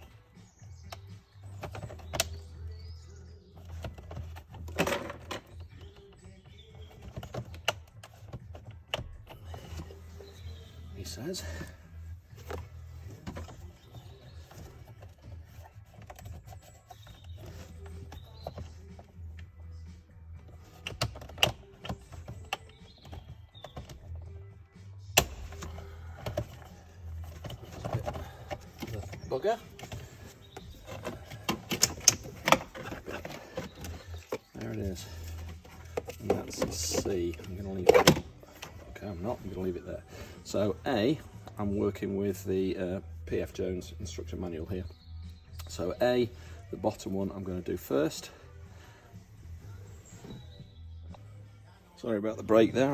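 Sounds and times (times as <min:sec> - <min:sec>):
plastic connectors clicking and knocking: 0:20.7 - 0:24.2, 0:25.2 - 0:38.7.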